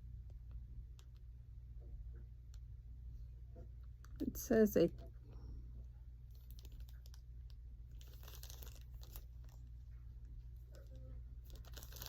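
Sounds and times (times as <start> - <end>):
steady low hum: 0.0 - 12.0
packaging rustling and crinkling: 6.3 - 9.7, 10.7 - 12.0.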